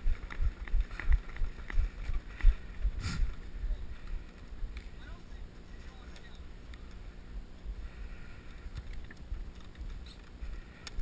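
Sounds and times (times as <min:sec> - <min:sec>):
running footsteps thudding: 0:00.0 - 0:04.4.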